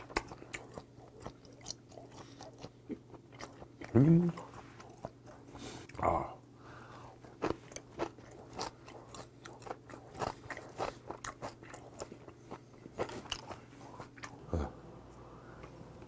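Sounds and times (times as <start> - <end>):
crunchy chewing of food: 0.0 - 6.0, 7.0 - 14.5.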